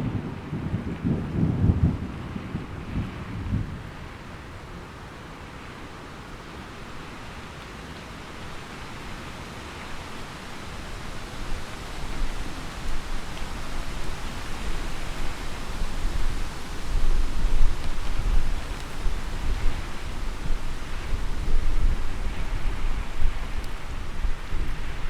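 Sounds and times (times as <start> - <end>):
low roll of thunder: 0.0 - 4.4
steady rain falling: 0.0 - 25.0.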